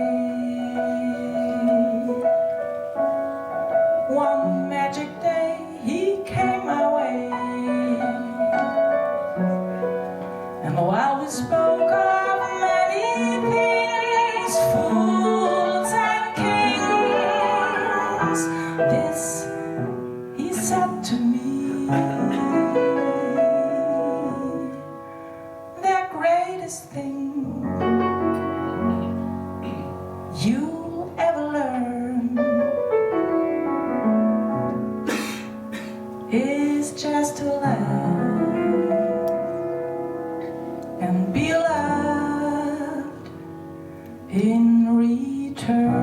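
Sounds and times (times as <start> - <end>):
woman singing wordlessly: 0.0 - 2.4, 4.0 - 9.2, 10.6 - 25.0, 25.8 - 28.1, 30.3 - 32.8, 36.3 - 39.5, 41.0 - 43.5, 44.2 - 46.0
jazz ballad on harp and piano: 0.0 - 46.0.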